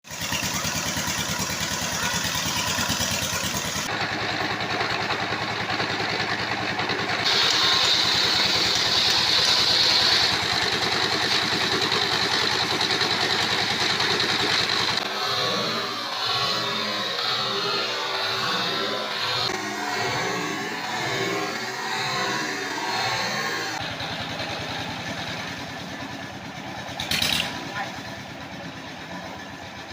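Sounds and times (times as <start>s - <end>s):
sawmill engine pulsing: 0.0s - 29.9s
high whine: 14.9s - 23.8s.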